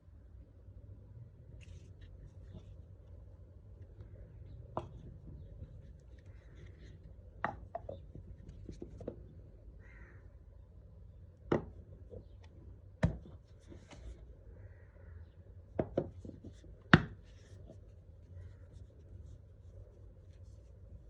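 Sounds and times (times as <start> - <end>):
faint scraping and rubbing: 1.5 - 9.2.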